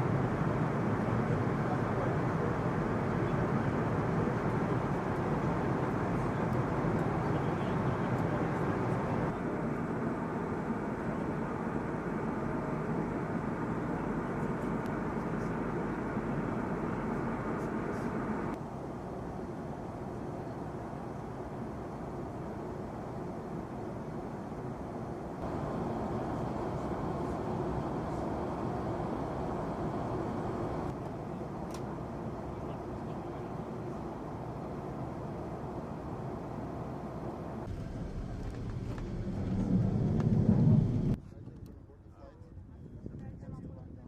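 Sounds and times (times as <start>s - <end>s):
fighter jet engine rushing: 25.1s - 31.0s, 31.8s - 41.2s.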